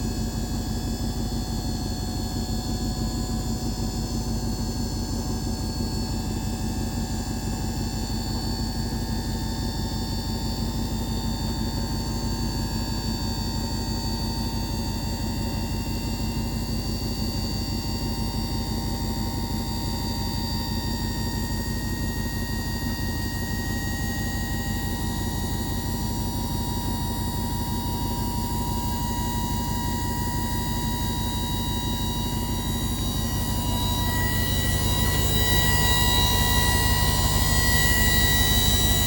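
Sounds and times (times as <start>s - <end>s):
faint high whine: 0.0s - 39.0s
truck engine idling: 27.9s - 39.0s.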